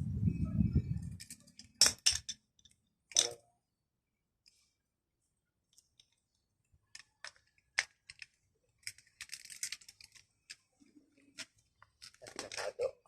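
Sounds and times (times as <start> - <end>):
clicks and rattles of hand tools: 1.2 - 3.4, 6.9 - 10.7.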